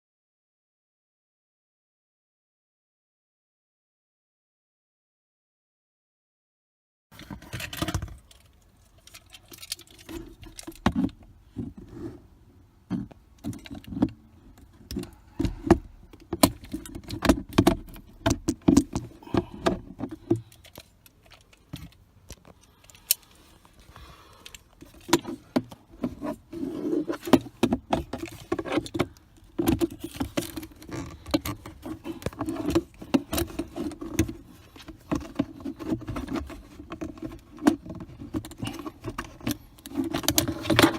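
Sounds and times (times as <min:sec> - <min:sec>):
plastic parts clicking and rattling: 0:07.2 - 0:11.8, 0:12.9 - 0:40.9.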